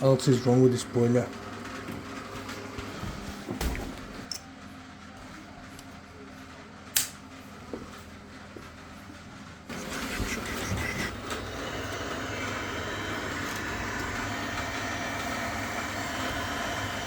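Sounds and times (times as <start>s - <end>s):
boiler fan and pump humming: 0.0s - 17.0s
boiler clicks: 6.9s - 7.2s.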